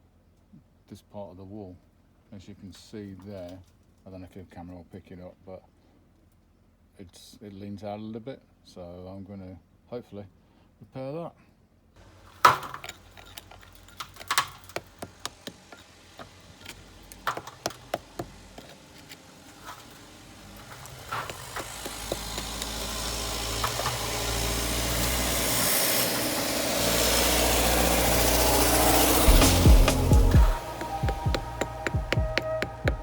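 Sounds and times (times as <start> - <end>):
motor humming: 12.8 - 33.0
sharp knocks and clicks: 16.6 - 18.8, 29.3 - 33.0.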